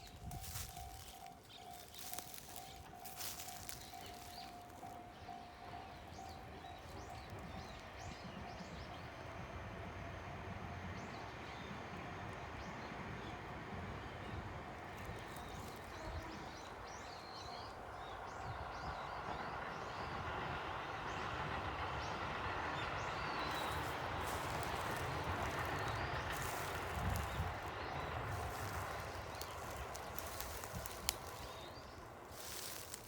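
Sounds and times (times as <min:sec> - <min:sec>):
small birds chirping: 0:00.0 - 0:08.4, 0:23.1 - 0:33.0.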